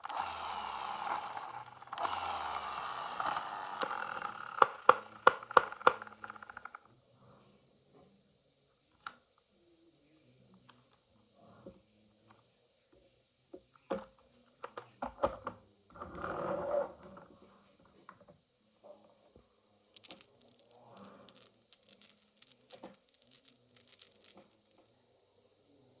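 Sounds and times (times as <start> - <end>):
marbles clacking on wooden run: 1.2 - 6.8, 20.0 - 24.8.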